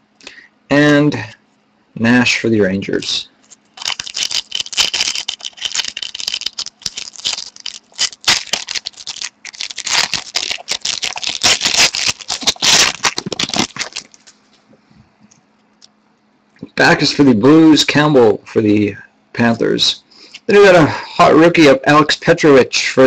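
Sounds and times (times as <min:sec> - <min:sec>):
cards clicking and rustling: 0:03.5 - 0:14.4.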